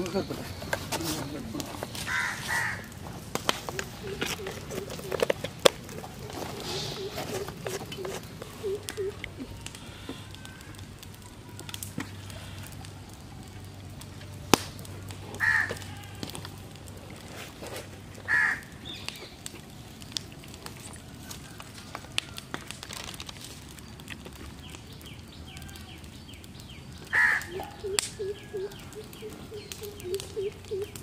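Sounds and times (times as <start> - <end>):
faint handling sounds: 0.0 - 12.6
bird cawing: 2.0 - 3.0, 3.7 - 5.4, 6.2 - 12.8, 15.4 - 16.3, 18.3 - 18.9, 27.1 - 31.0.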